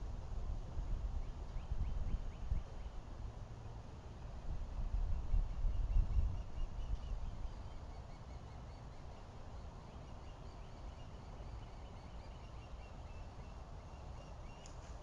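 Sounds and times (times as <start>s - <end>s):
low steady rumble: 0.0s - 15.0s
birds chirping: 5.1s - 15.0s.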